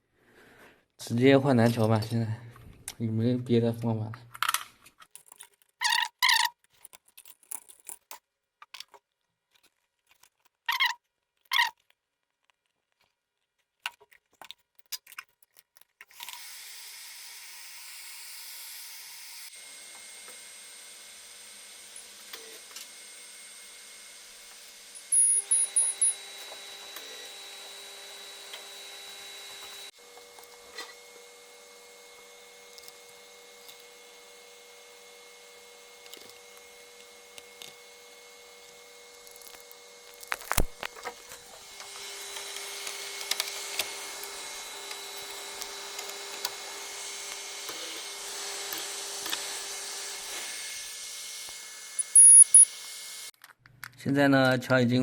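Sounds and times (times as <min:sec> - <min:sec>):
clicks and scraping: 0:04.3 - 0:16.4, 0:39.2 - 0:46.6.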